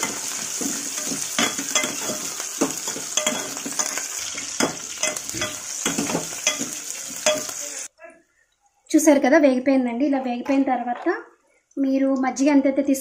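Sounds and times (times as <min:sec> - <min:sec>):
metal ladle scraping pot: 0:00.0 - 0:07.5
onions sizzling in hot oil: 0:00.0 - 0:07.9.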